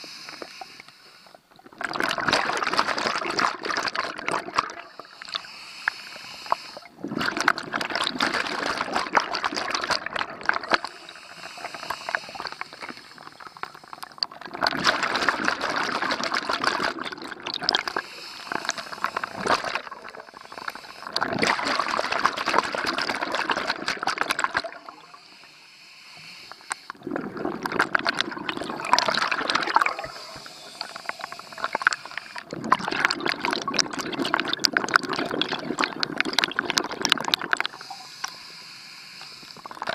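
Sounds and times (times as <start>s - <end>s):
air bubbling underwater: 1.6s - 4.9s, 6.8s - 25.2s, 27.0s - 38.1s
diver breathing: 4.8s - 6.9s, 10.8s - 14.2s, 17.8s - 21.8s, 24.8s - 27.6s, 28.8s - 32.6s, 37.6s - 39.8s.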